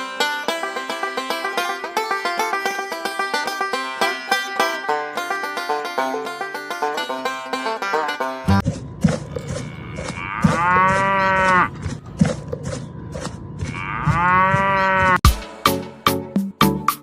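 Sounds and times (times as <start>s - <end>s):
cow mooing: 9.3s - 11.9s, 13.6s - 15.2s.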